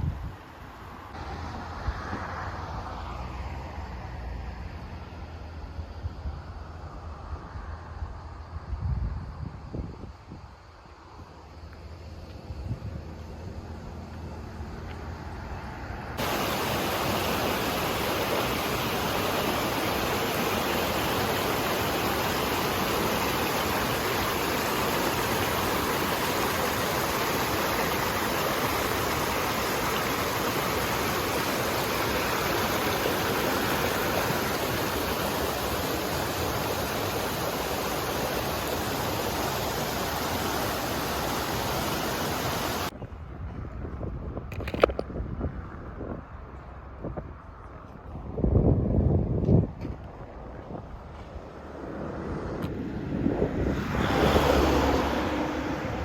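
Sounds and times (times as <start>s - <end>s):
waterfall rushing: 16.2s - 42.9s, 53.8s - 56.0s.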